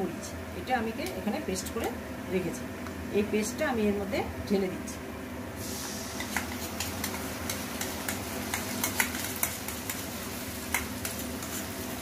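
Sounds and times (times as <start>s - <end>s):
paste sizzling in oil: 5.6s - 12.0s.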